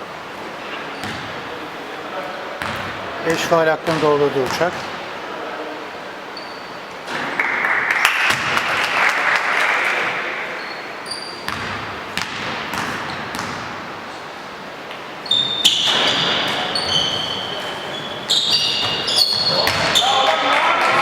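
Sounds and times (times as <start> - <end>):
crowd noise: 0.0 - 21.0
shoe squeaks: 0.6 - 1.3, 6.3 - 6.9, 10.6 - 11.6, 15.2 - 20.2
basketball bouncing on court: 0.9 - 1.4, 2.6 - 3.1, 3.8 - 4.9, 8.3 - 8.8, 11.3 - 13.9, 18.4 - 20.1.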